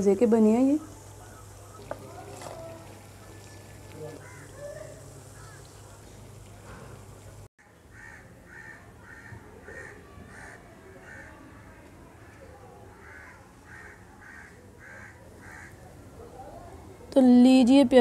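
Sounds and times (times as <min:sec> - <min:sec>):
faint bird calls: 0:00.8 - 0:07.0, 0:07.9 - 0:11.5, 0:12.2 - 0:16.6.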